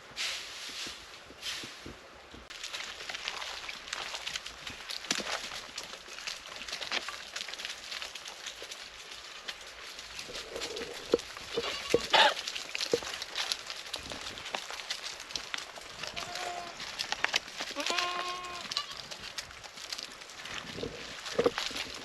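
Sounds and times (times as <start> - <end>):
straw rustling: 0.2 - 22.0
goats bleating: 11.5 - 12.4, 16.0 - 16.8, 17.7 - 19.0.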